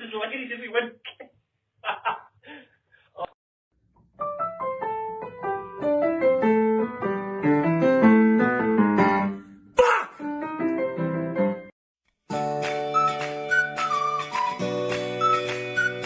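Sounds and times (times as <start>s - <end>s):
piano music: 4.2s - 9.6s, 10.2s - 11.7s, 12.3s - 16.0s.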